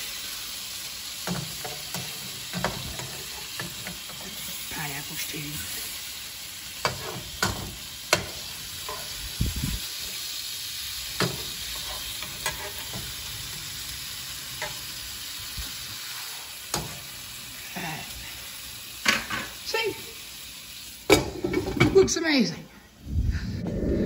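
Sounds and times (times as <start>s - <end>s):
food sizzling in a frying pan: 0.0s - 23.0s
metal spatula scraping a pan: 1.2s - 5.0s, 6.8s - 9.3s, 11.2s - 15.0s.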